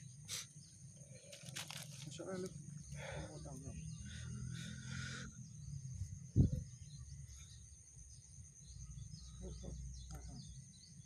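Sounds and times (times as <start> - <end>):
insect drone: 0.0 - 11.0
bird chirps: 3.3 - 11.0.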